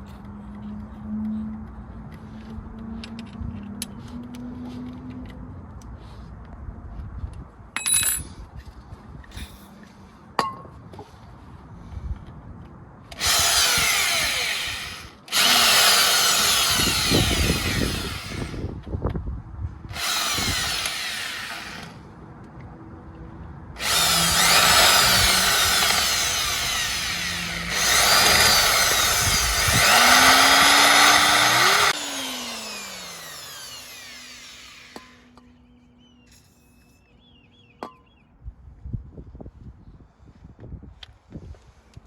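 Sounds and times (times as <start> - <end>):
power drill drilling into metal: 13.2 - 18.7, 19.9 - 22.0, 23.8 - 35.2.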